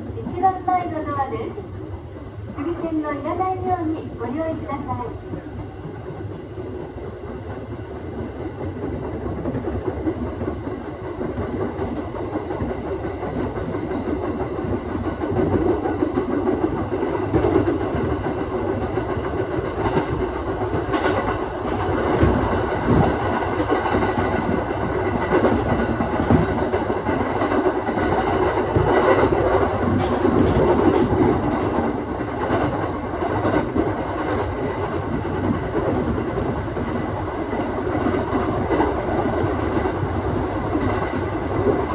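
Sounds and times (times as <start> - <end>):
train running noise: 0.0 - 41.9
wheels clacking over rail joints: 14.5 - 40.0.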